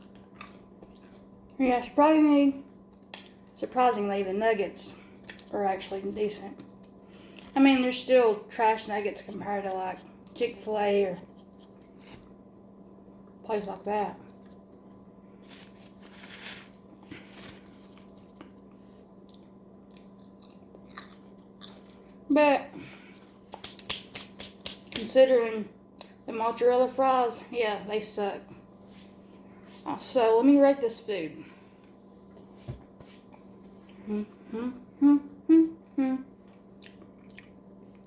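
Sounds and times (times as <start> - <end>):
person chewing food: 0.0 - 1.6, 17.9 - 22.2, 36.4 - 38.0
woman humming with mouth full: 34.0 - 36.3.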